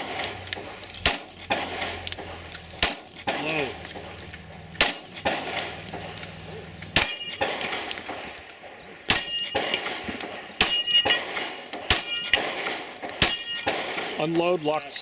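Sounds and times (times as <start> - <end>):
pistol shots: 0.0 - 14.4
steel target ringing: 7.0 - 7.8, 9.1 - 13.8.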